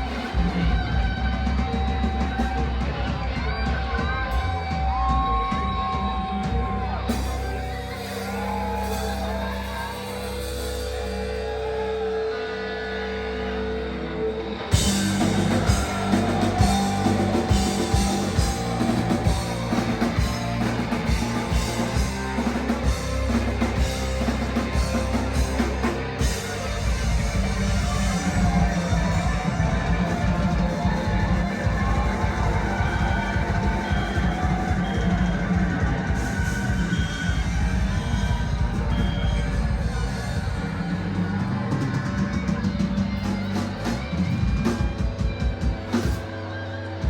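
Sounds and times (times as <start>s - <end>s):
live rock band playing: 0.0s - 47.0s
bending guitar notes: 10.0s - 47.0s
busy drumming: 14.7s - 46.3s.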